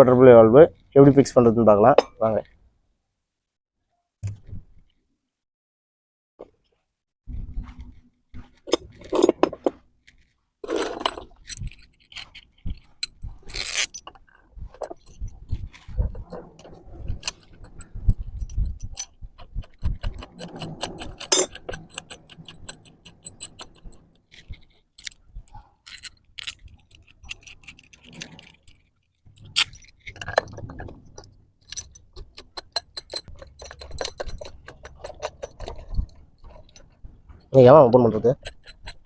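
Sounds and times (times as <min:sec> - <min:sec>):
metal bolts clinking: 0:13.0 - 0:39.0.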